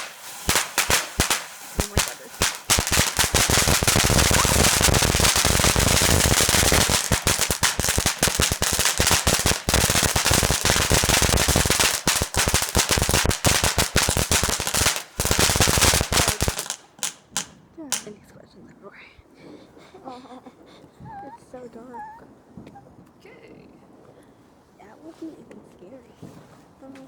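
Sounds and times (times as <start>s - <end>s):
firework cracks and bangs: 0.0s - 18.1s.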